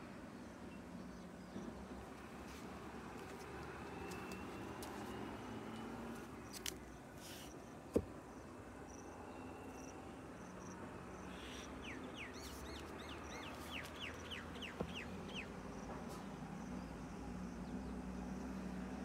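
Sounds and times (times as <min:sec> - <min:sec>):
bird calling with whistled notes: 0:11.2 - 0:15.6.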